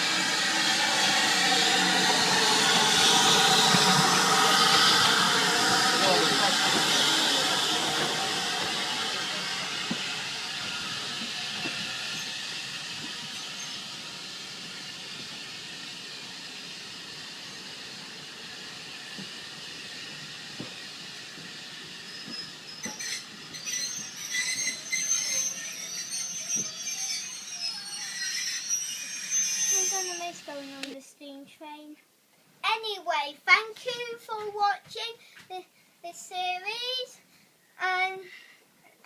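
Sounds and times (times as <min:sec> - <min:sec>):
steam locomotive hissing: 0:00.0 - 0:31.0.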